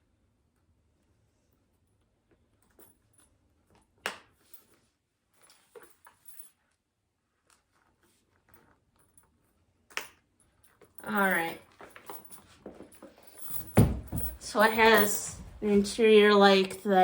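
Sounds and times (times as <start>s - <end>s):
metal hardware clicks and clinks: 10.7s - 16.0s
handbag rustling: 11.1s - 16.1s.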